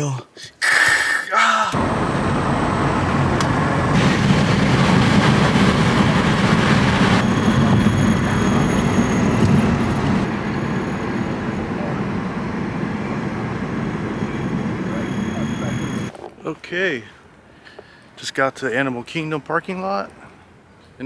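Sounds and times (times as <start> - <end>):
car interior road noise: 1.7 - 16.1.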